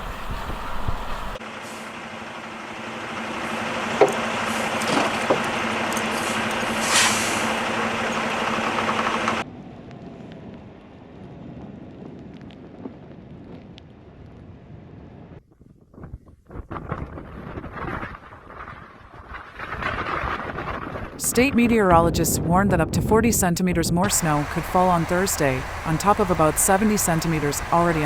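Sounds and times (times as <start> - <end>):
vehicle engine running: 0.0 - 9.4, 21.2 - 28.0
outdoor noise: 0.0 - 22.3, 24.0 - 28.0.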